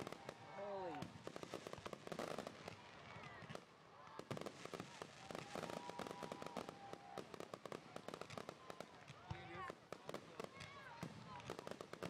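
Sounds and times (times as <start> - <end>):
distant fireworks crackling: 0.0 - 12.0.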